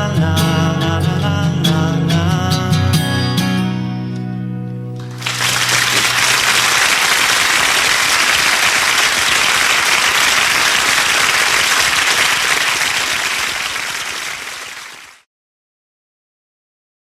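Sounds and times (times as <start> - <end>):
audience applauding and cheering: 5.0 - 15.2.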